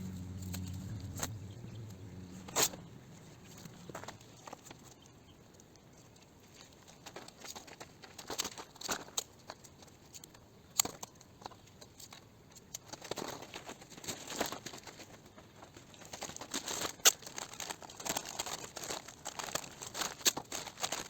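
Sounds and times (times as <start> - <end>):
tape crinkling: 12.9 - 21.0.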